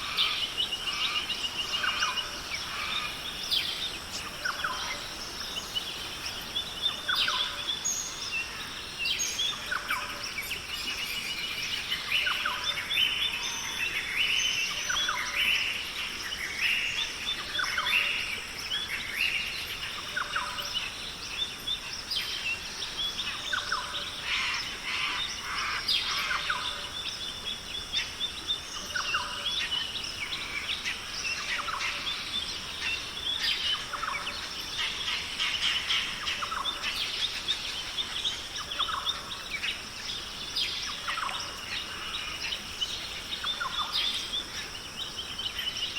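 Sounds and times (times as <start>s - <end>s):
birds chirping and calling: 28.0s - 45.9s.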